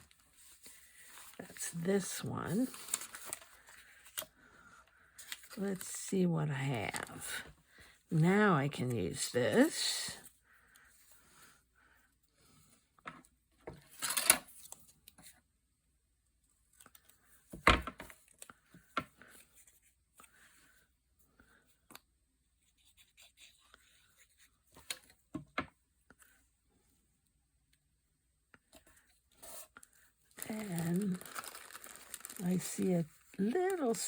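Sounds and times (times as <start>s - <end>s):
paper tearing and rustling: 30.4s - 32.9s.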